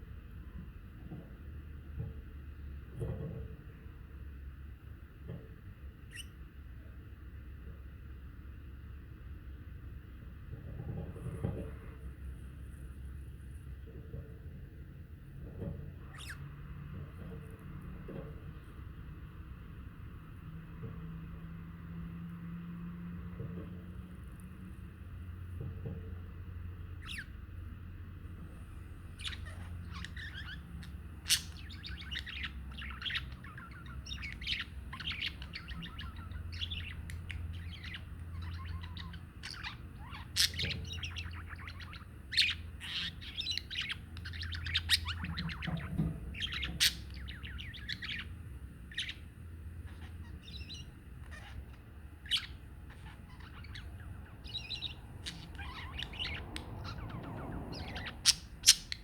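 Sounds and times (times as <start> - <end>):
low steady hum: 0.0 - 59.0
budgerigars chattering: 29.1 - 59.0.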